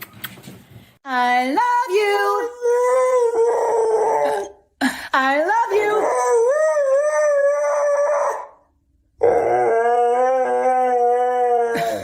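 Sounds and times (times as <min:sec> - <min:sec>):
dog howling: 0:05.7 - 0:12.0.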